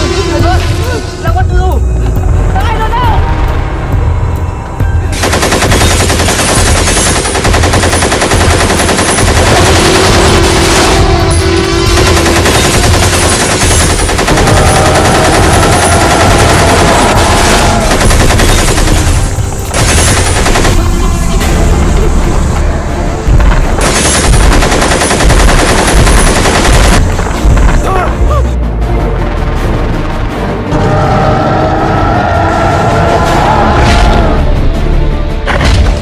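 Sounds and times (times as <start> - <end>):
automatic machine-gun fire: 5.2 - 11.1, 11.9 - 21.0, 23.7 - 27.6.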